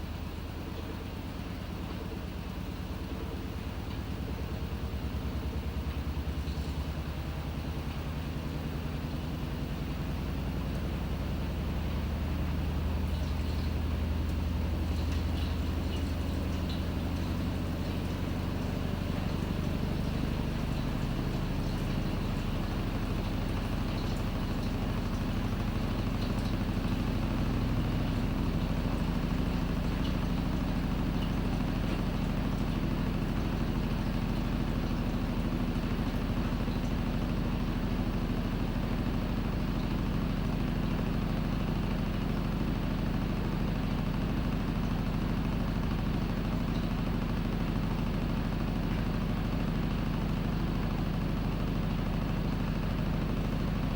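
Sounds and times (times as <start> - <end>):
washing machine motor hum: 0.0 - 53.9.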